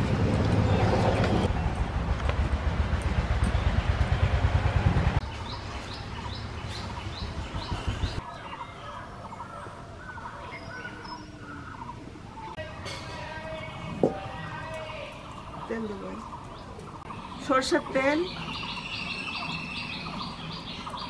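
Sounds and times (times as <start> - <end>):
birds chirping: 0.0 - 1.8, 5.2 - 21.0
loud low rumbling: 0.0 - 8.2.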